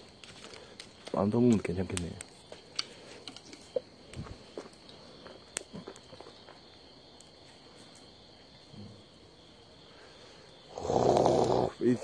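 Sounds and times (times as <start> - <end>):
insects chirring: 0.0 - 12.0
small clicks and light knocks: 0.2 - 4.2.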